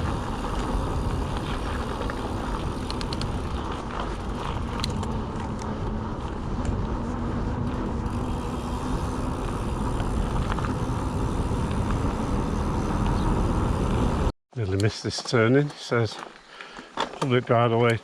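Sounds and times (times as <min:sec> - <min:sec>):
bike tyres rolling on tarmac: 0:00.0 - 0:14.3.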